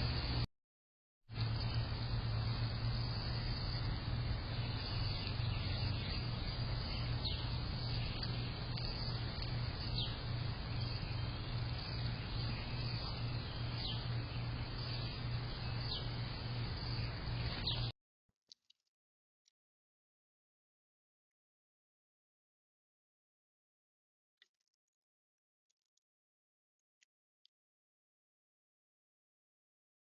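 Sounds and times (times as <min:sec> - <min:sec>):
low hum: 0:00.0 - 0:00.5, 0:01.3 - 0:17.9
steady hiss: 0:01.4 - 0:17.9
high bird chirps: 0:03.0 - 0:17.9.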